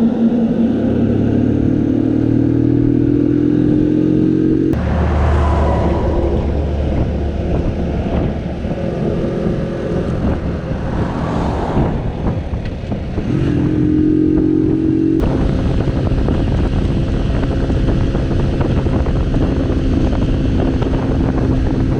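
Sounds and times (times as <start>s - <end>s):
vehicles passing: 0.0s - 21.9s
wind on microphone: 0.0s - 21.9s
moped engine running: 11.9s - 21.9s.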